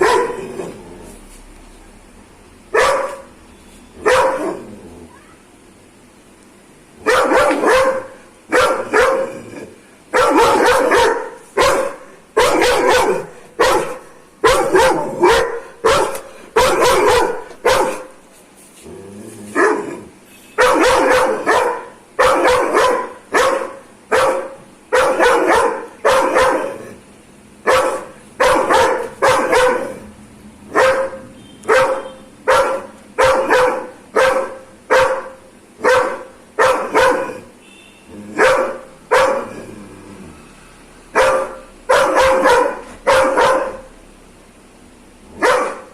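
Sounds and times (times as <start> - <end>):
dog barking aggressively: 0.0 - 0.8, 2.7 - 3.3, 4.0 - 4.7, 7.0 - 18.2, 19.5 - 20.0, 20.6 - 27.0, 27.6 - 30.0, 30.7 - 37.6, 38.2 - 39.7, 41.1 - 43.9, 45.3 - 45.9.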